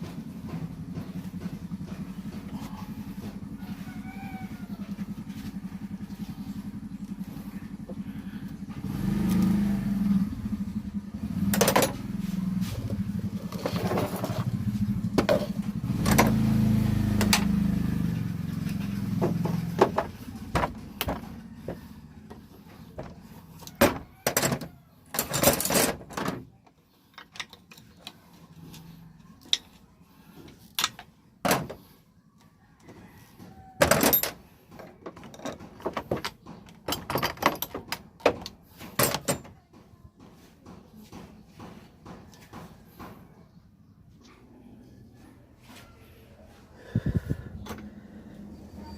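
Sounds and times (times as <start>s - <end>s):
vehicle engine revving: 0.0s - 23.6s.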